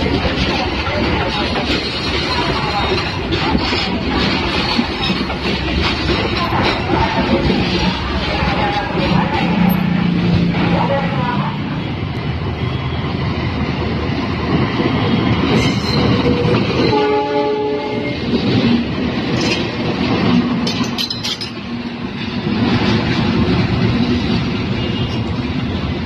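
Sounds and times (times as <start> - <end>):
train running past: 0.0 - 26.0
train horn blast: 16.9 - 18.2.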